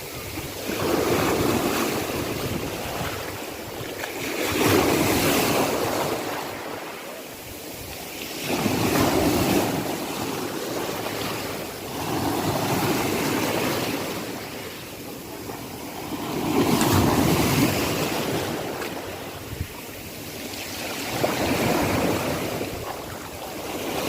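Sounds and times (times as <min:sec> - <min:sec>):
sea waves washing in: 0:00.0 - 0:24.0.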